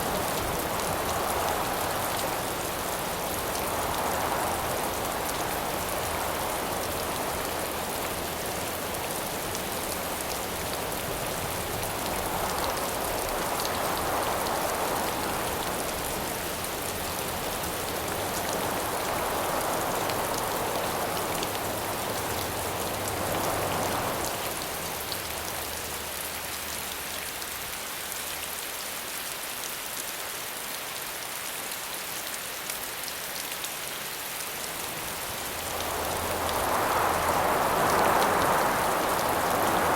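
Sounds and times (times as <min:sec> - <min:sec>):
howling wind gusts: 0:00.0 - 0:25.7, 0:34.4 - 0:39.9
steady rain: 0:00.0 - 0:39.9.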